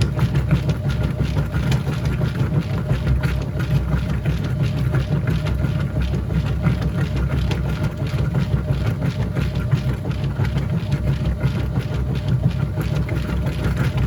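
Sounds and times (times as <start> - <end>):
washing machine humming: 0.0 - 14.0.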